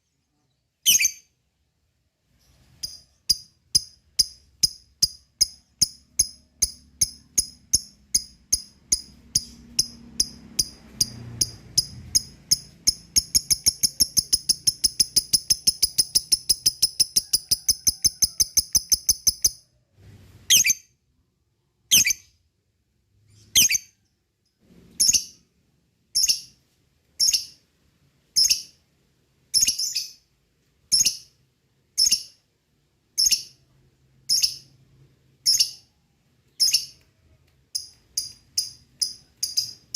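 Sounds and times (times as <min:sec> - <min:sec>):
lovebird chirping: 0:00.0 - 0:01.4, 0:02.3 - 0:19.7, 0:20.5 - 0:21.0, 0:21.9 - 0:22.4, 0:23.2 - 0:24.1, 0:24.9 - 0:25.4, 0:26.1 - 0:26.6, 0:27.2 - 0:27.6, 0:28.3 - 0:28.8, 0:29.5 - 0:30.3, 0:30.9 - 0:31.4, 0:32.0 - 0:32.4, 0:33.1 - 0:34.8, 0:35.4 - 0:35.9, 0:36.5 - 0:37.1, 0:37.7 - 0:39.9.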